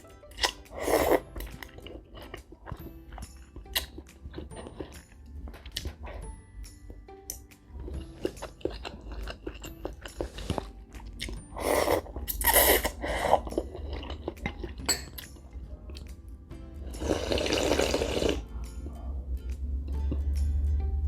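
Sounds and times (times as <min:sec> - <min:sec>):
soft background music: 0:00.0 - 0:21.0
chewing: 0:00.2 - 0:06.3, 0:07.3 - 0:16.2
person slurping noodles: 0:00.4 - 0:01.4, 0:10.1 - 0:10.7, 0:11.5 - 0:14.1, 0:16.9 - 0:18.4.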